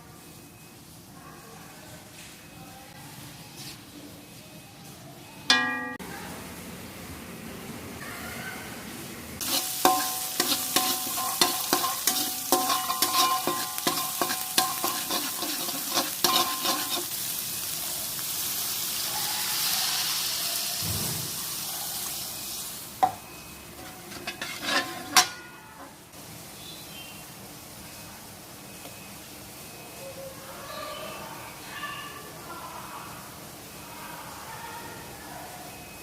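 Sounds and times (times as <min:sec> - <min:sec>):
metal utensil scraping metal pan: 0:09.4 - 0:17.2, 0:23.8 - 0:26.0
food sizzling in a pan: 0:09.4 - 0:36.0.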